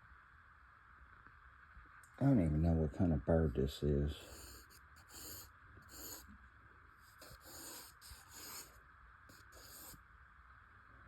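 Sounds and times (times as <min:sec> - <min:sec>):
drawing tool scratching on paper: 0:04.2 - 0:06.4, 0:07.0 - 0:10.0.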